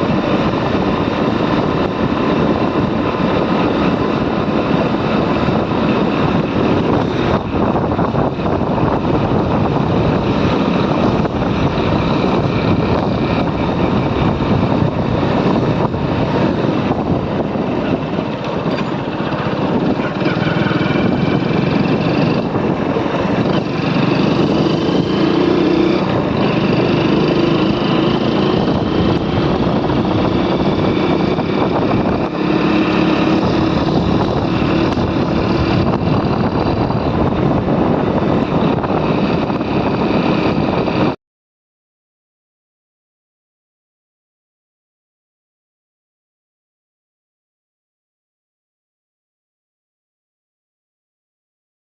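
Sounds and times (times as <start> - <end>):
motorcycle engine running: 0.0 - 41.2
wind rushing over microphone: 0.0 - 41.2.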